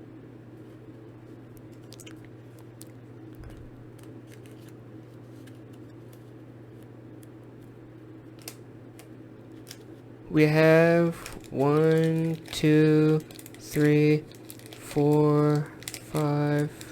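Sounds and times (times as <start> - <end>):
low electrical hum: 0.0 - 16.9
cards and foil packs crinkling: 1.7 - 6.1, 9.5 - 16.9.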